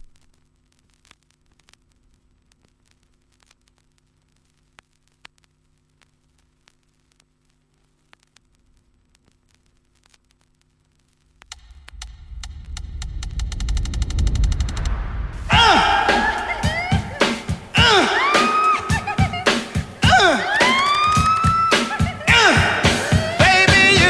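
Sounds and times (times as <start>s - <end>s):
vinyl record crackle: 0.0s - 14.4s
steady low hum: 11.4s - 20.5s.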